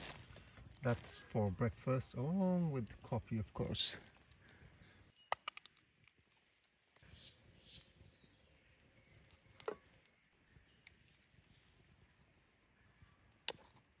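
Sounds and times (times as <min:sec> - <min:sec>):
small bird chirps: 0:07.0 - 0:12.0.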